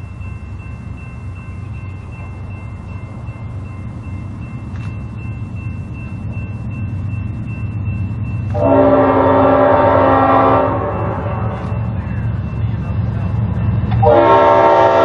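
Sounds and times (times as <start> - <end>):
diesel locomotive engine rumble: 0.0 - 15.0
locomotive air horn chord: 8.6 - 11.6, 14.0 - 15.0.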